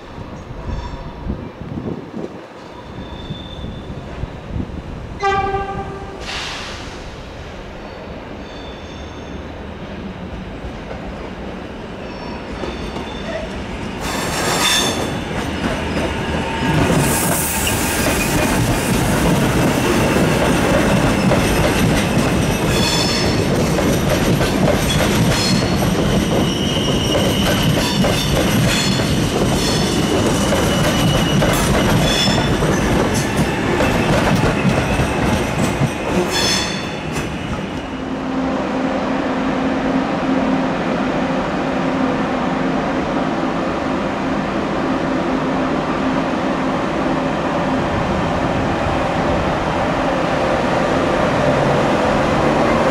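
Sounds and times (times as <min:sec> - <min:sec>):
high-pitched wheel squeals: 0:02.6 - 0:04.0, 0:08.0 - 0:09.4
train rolling rumble: 0:09.7 - 0:52.9.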